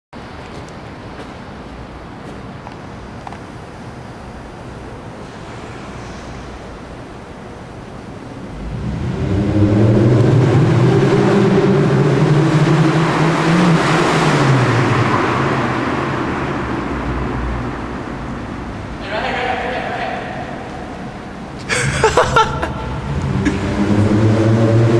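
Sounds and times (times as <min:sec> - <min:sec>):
car engine revving: 0:08.2 - 0:19.0, 0:21.2 - 0:24.9.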